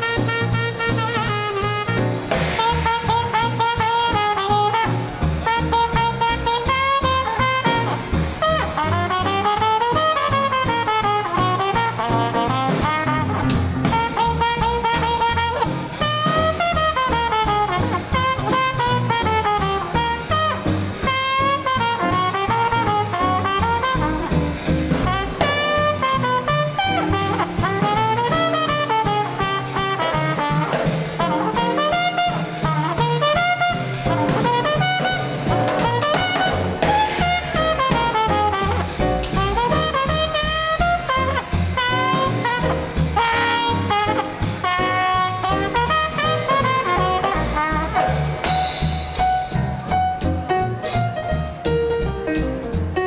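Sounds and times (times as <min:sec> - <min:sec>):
saxophone: 0:00.0 - 0:48.8
trumpet: 0:00.0 - 0:51.6
steady drums: 0:00.0 - 0:53.0
walking bass: 0:00.0 - 0:53.0.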